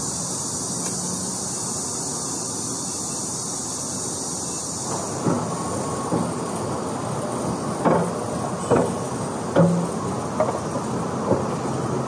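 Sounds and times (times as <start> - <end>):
train rumble and hiss: 0.0 - 12.0
wheels knocking over rail joint: 7.8 - 11.8.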